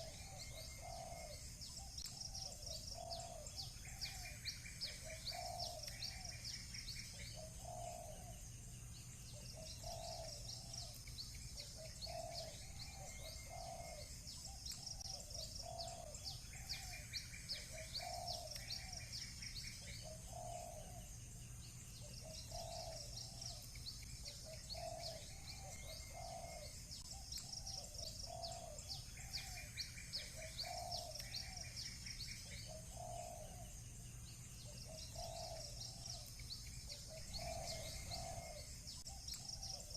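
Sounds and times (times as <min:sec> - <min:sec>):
doves cooing: 0:00.0 - 0:08.5, 0:09.3 - 0:21.2, 0:22.0 - 0:33.8, 0:34.6 - 0:39.9
small birds chirping: 0:00.0 - 0:39.9.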